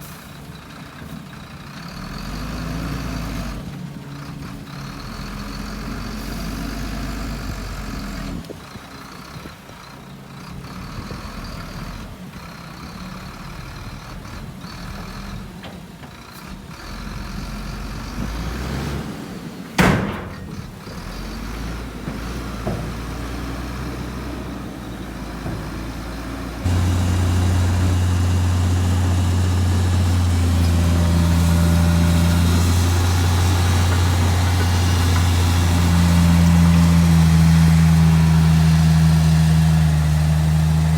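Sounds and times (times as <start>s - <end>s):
heavy diesel engines running: 0.0s - 40.9s
loud steady engine drone: 26.4s - 40.9s.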